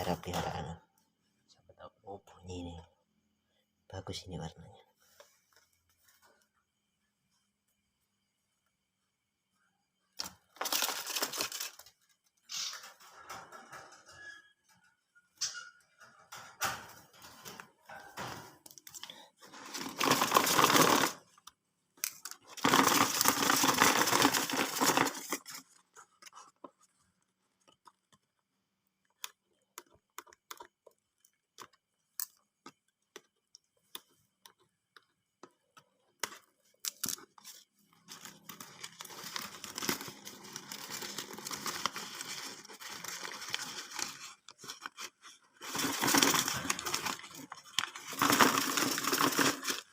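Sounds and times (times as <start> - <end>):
paper rustling and crinkling: 10.2 - 13.2, 17.2 - 21.4, 22.0 - 27.1, 36.2 - 49.9
cardboard and paper ripping: 19.6 - 21.2, 22.5 - 25.6, 38.1 - 49.9.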